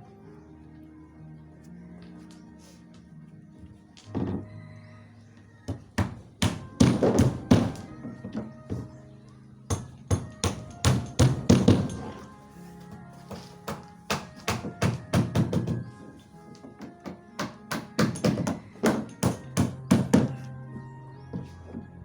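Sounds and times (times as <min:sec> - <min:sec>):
hammer striking wood: 0:05.7 - 0:08.9, 0:09.7 - 0:12.2, 0:13.3 - 0:15.9, 0:16.7 - 0:20.5.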